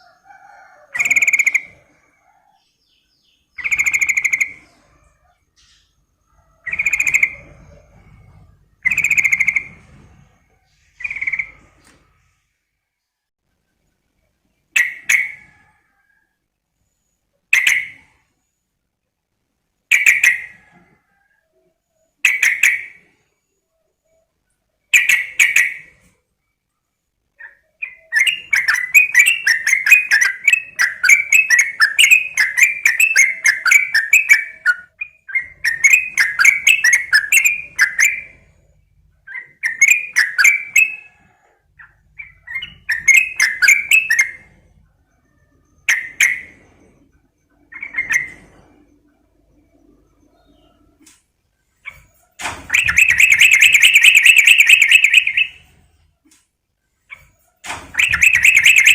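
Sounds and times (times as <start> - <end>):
bird rapid chattering: 3.5 - 5.0, 6.6 - 7.9, 8.8 - 9.8, 11.0 - 11.7, 27.4 - 38.4, 52.7 - 55.7, 57.9 - 58.9
bird calling with bubbly notes: 52.7 - 55.6, 57.9 - 58.9.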